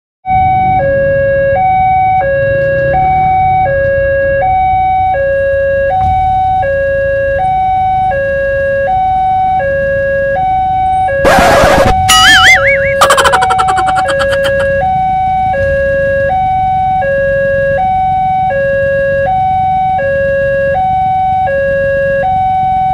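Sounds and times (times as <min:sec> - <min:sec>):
two-tone level crossing alarm: 0:10.3 - 0:14.7
short warbling tone: 0:12.1 - 0:14.7.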